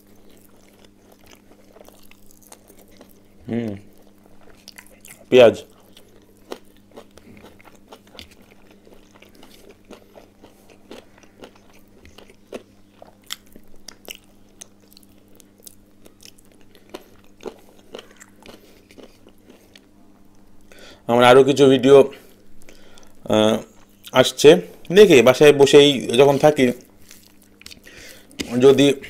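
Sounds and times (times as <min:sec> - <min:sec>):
soft crunching bites: 0:00.0 - 0:20.4.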